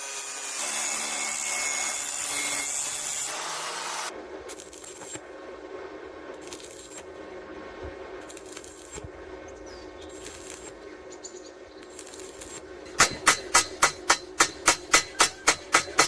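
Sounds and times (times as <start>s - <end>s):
low steady hum: 4.0s - 16.0s
hammer striking steel: 12.9s - 16.0s.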